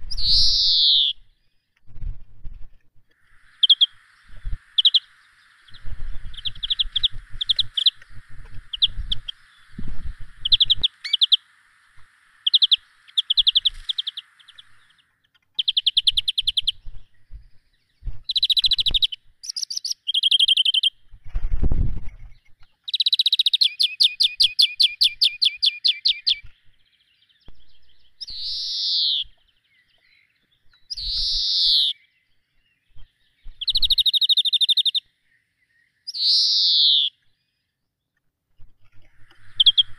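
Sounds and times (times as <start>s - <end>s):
birds chirping and trilling: 0.0s - 1.8s, 3.1s - 21.2s, 22.0s - 39.9s
steady hiss: 3.0s - 15.1s, 39.0s - 39.9s.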